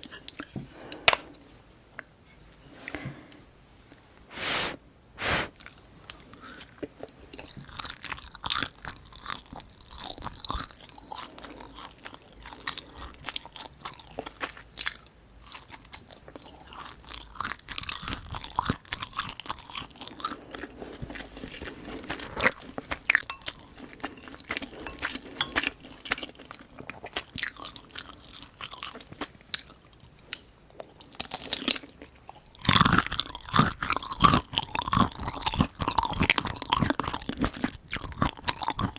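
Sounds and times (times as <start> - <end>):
chewing and crunching food: 5.6 - 38.9.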